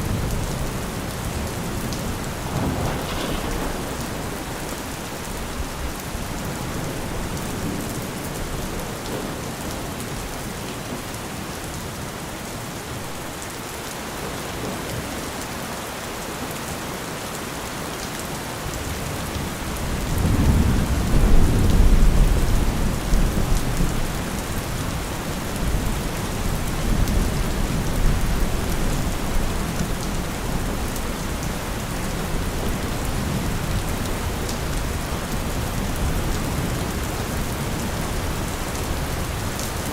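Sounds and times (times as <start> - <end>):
steady rain: 0.0 - 39.9
thunder rolling: 0.1 - 9.3.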